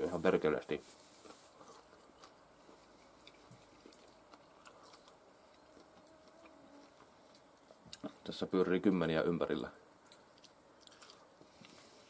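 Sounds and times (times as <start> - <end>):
faint chewing clicks: 1.2 - 8.3, 9.9 - 12.0.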